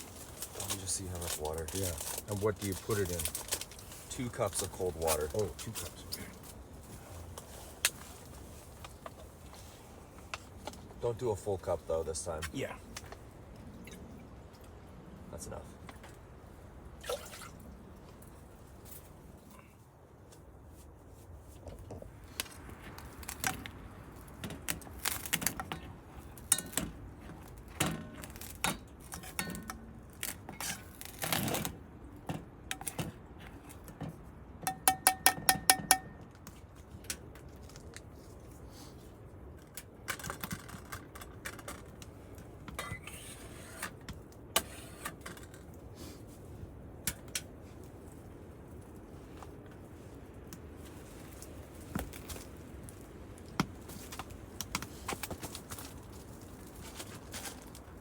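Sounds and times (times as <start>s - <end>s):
sharp ringing taps: 34.6s - 36.3s.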